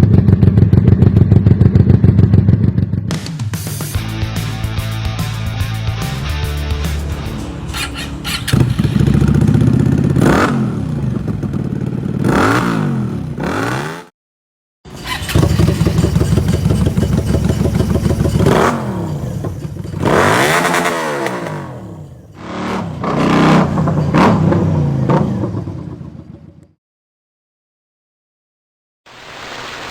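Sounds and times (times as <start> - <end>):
motorcycle engine idling and revving: 0.0 - 14.1, 14.9 - 26.8.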